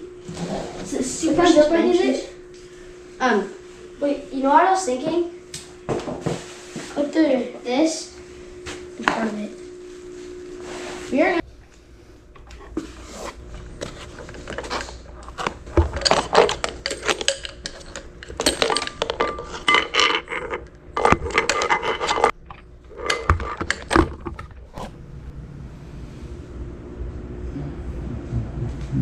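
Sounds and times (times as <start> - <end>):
small hard parts clattering: 13.8 - 24.7.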